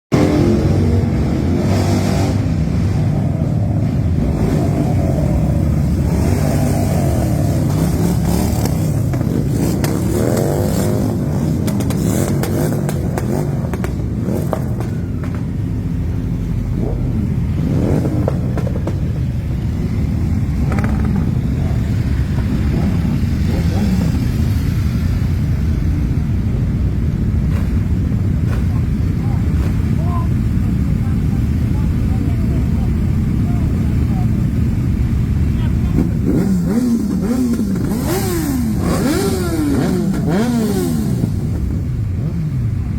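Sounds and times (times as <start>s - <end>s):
motorcycle engines rumbling: 0.1s - 42.9s
motorcycles revving past: 0.2s - 26.3s, 35.7s - 42.8s.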